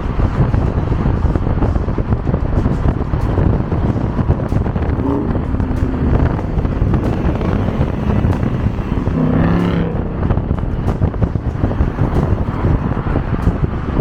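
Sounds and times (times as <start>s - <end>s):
car engine and road rumble: 0.0s - 14.0s
wind buffeting microphone: 0.0s - 14.0s
short rising pitched sound: 4.9s - 10.1s.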